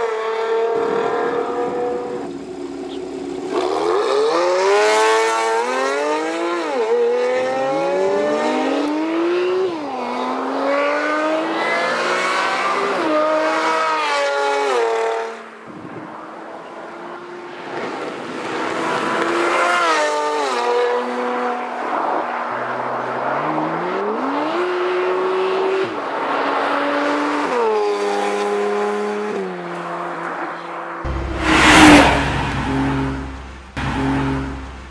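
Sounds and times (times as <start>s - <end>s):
sports car engine revving: 31.1s - 34.9s.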